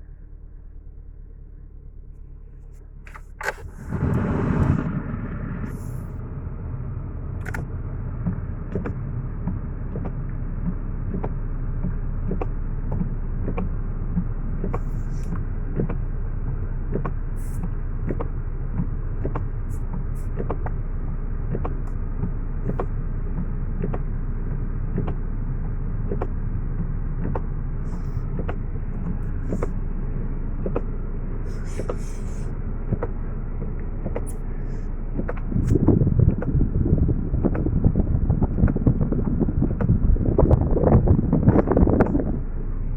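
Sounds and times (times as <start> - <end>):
car engine idling: 0.0 - 42.9
light regular ticking: 7.3 - 36.6.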